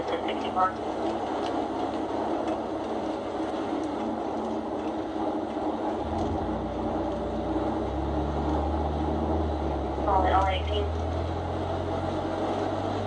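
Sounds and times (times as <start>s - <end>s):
vehicle engine and road noise: 0.0s - 13.0s
deep low rumble: 4.0s - 13.0s.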